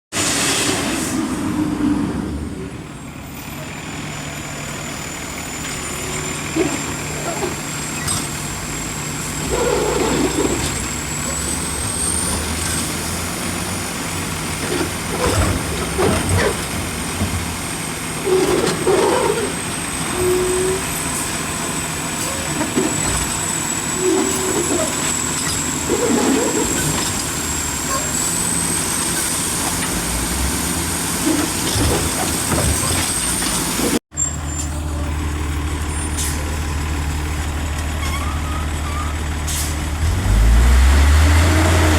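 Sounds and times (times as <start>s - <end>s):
diesel engines running: 0.2s - 41.9s
short squeals of packing gear: 18.2s - 20.9s, 23.8s - 27.0s.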